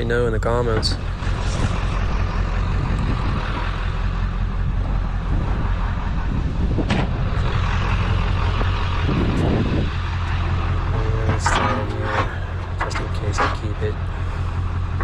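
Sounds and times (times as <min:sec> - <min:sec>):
vehicle engine idling: 0:00.0 - 0:15.0
metal clanks: 0:06.8 - 0:15.0.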